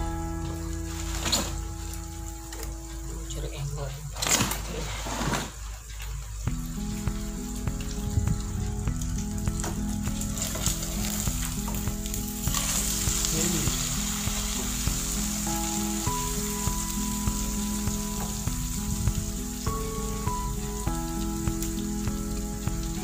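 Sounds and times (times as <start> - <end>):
omelet sizzling in a frying pan: 0.0 - 23.0
wooden spatula scraping a pan: 4.6 - 6.1.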